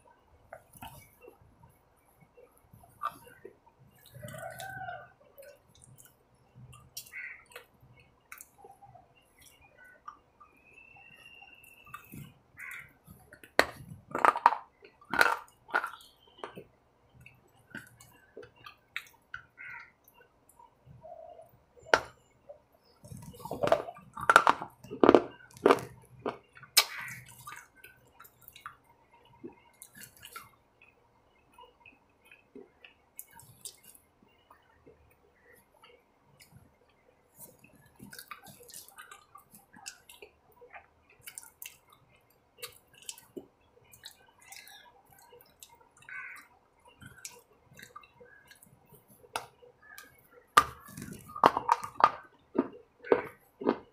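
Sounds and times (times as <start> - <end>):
person chewing food: 11.5 - 21.0, 23.0 - 30.9, 31.8 - 35.0, 35.6 - 53.9.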